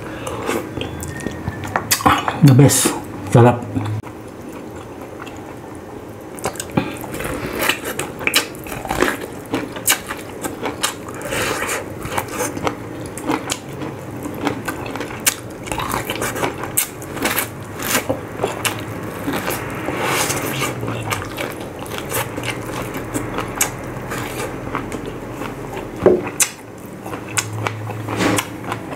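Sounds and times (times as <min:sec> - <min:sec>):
chewing corn on the cob: 0:06.4 - 0:28.9.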